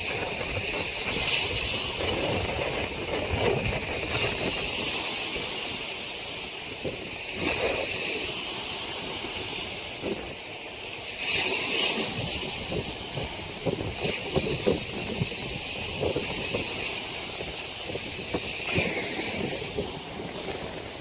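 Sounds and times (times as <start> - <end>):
storm wind gusting: 0.0 - 21.0
wind knocking on microphone: 12.0 - 21.0.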